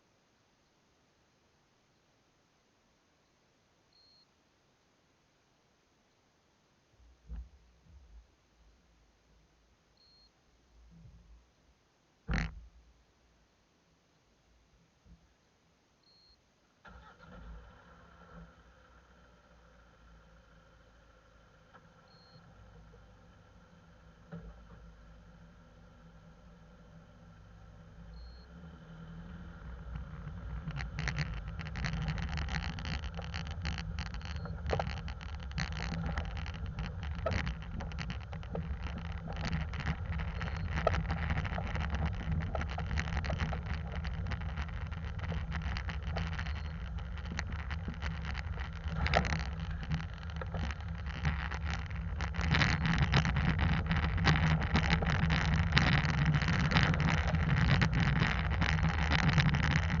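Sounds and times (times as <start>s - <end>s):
engine and tyres rumbling: 16.8s - 60.0s
small clicks and crackles: 16.9s - 60.0s.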